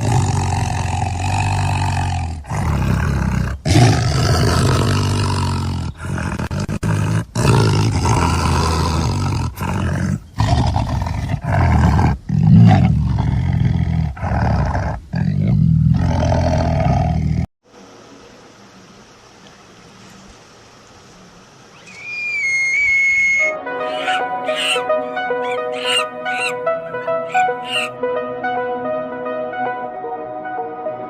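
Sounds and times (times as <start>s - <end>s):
large animal roaring: 0.0s - 17.5s.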